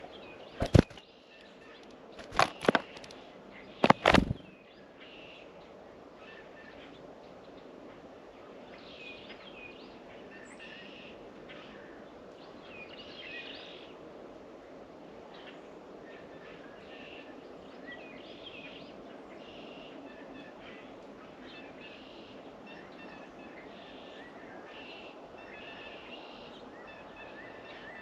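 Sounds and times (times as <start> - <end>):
small birds chirping: 0.0 - 5.1
bird wingbeats: 0.6 - 1.0, 2.2 - 3.1, 3.8 - 4.5.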